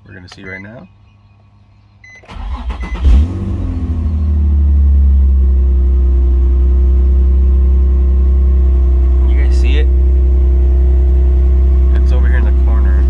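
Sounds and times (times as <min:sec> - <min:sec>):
engine starter cranking: 0:02.2 - 0:03.5
car engine revving and idling: 0:02.4 - 0:13.0.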